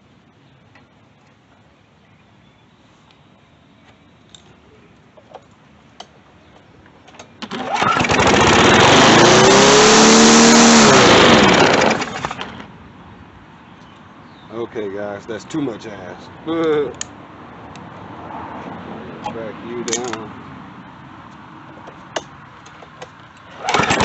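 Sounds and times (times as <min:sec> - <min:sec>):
lawn mower engine running: 0:07.4 - 0:12.7, 0:23.5 - 0:24.0.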